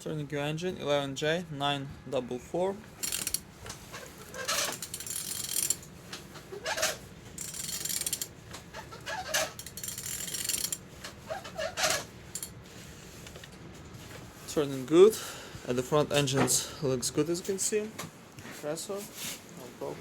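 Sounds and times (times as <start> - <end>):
ratchet wrench clicking: 3.0 - 3.4, 4.2 - 5.8, 6.7 - 8.3, 9.2 - 10.8, 11.8 - 12.5
short squeaks: 3.0 - 5.7, 6.3 - 12.5.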